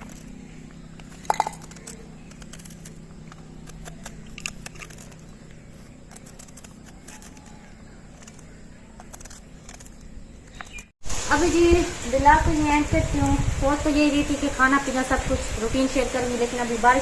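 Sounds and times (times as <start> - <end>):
low steady hum: 0.0 - 17.0
knife cutting crisp vegetable: 1.0 - 10.9.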